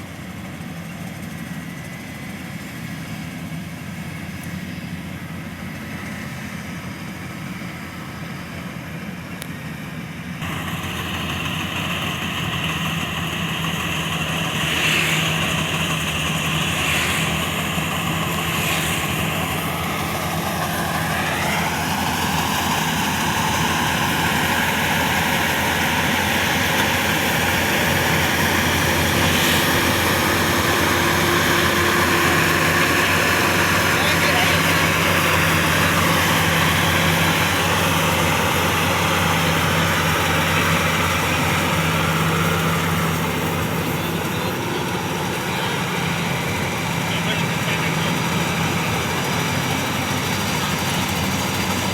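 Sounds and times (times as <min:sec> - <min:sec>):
combine harvester engine running: 0:00.0 - 0:51.9
high mechanical whine: 0:10.4 - 0:51.9.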